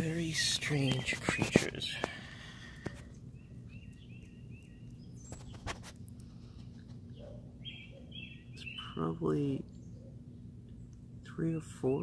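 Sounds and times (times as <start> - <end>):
bird chirps: 3.1 - 5.8, 7.1 - 11.0.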